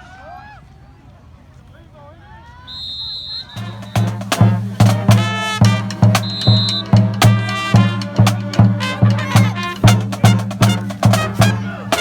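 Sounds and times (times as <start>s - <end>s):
bass line: 3.6s - 12.0s
driving drum beat: 3.6s - 12.0s.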